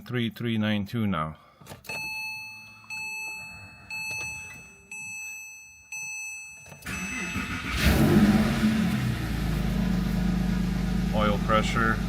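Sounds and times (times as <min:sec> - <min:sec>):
dashboard warning chime: 0:01.8 - 0:08.3
car engine idling: 0:06.8 - 0:12.0.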